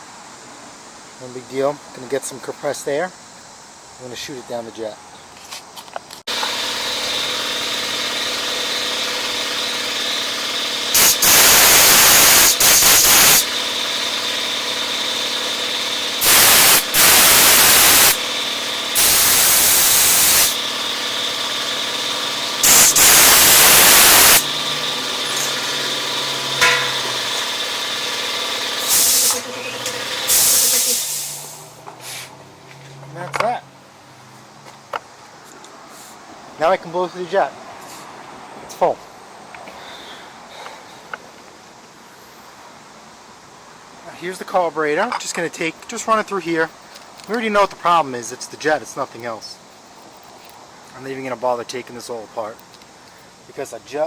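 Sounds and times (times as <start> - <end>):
air compressor running: 6.3 - 32.3
compressed air blasts from blow gun: 10.9 - 13.5, 16.2 - 18.2, 19.0 - 20.6, 22.6 - 24.5, 28.8 - 29.4, 30.3 - 32.4.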